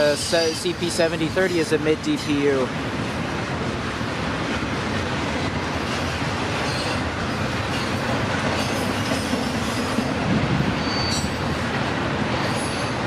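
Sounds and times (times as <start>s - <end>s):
high wheel squeal: 0.0s - 0.8s, 10.8s - 11.6s, 12.4s - 13.0s
freight train cars rolling past: 0.0s - 13.0s.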